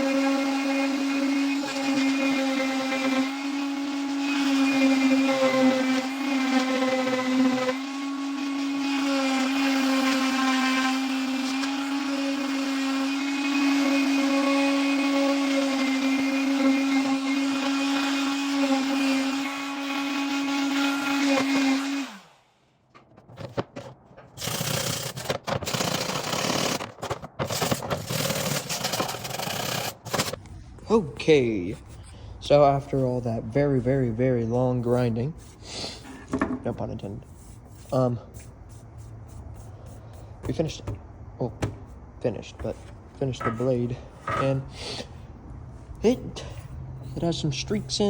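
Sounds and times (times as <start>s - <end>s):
electric grinder grinding metal: 0.0s - 22.3s, 24.4s - 26.8s
scraping and handling noises: 22.9s - 24.5s, 26.7s - 32.1s.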